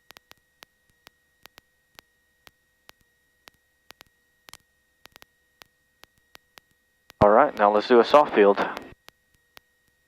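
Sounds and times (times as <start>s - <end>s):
faint electrical tone: 0.0s - 10.0s
faint sharp clicks: 0.1s - 7.7s.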